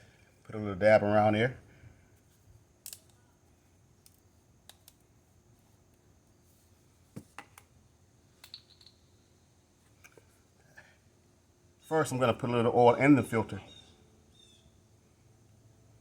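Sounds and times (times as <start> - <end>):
faint clicks of small objects: 2.3 - 3.3, 4.0 - 5.1, 8.4 - 9.0.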